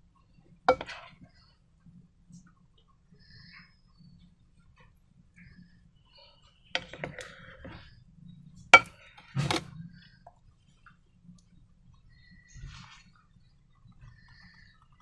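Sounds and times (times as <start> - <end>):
utensils clinking and knocking: 8.8 - 9.7.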